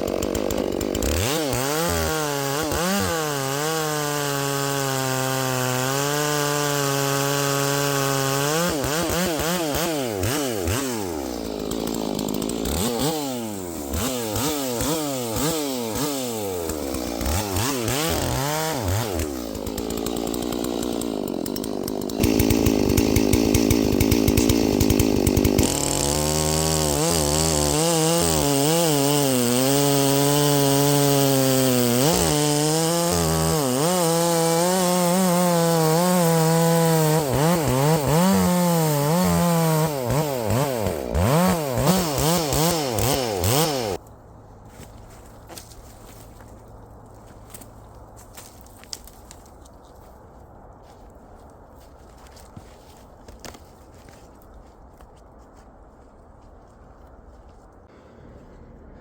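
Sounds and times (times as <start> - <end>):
chainsaw cutting log: 0.0 - 44.0, 52.1 - 54.8.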